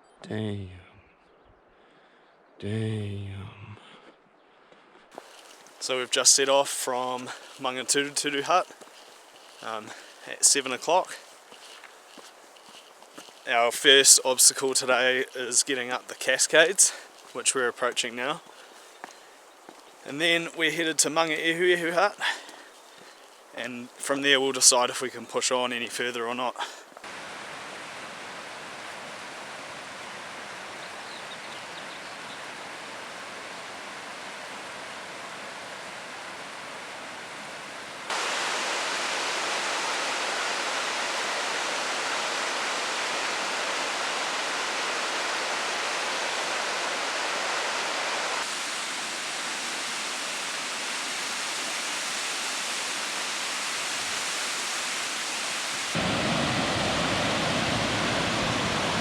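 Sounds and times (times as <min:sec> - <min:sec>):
waterfall rushing: 0:05.2 - 0:17.6, 0:27.0 - 0:59.0.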